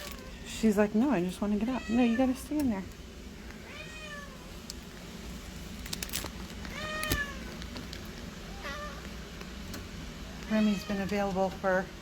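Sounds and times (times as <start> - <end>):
cat meowing: 1.7 - 2.4, 3.7 - 4.5, 6.7 - 7.5, 8.5 - 9.0.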